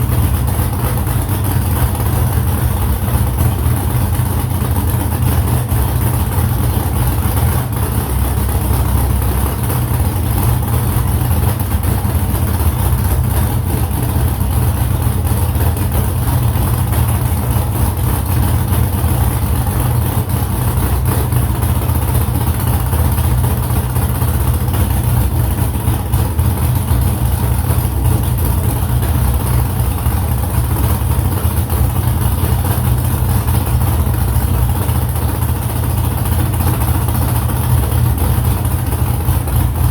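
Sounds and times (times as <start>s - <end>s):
car engine running steadily: 0.0s - 39.9s.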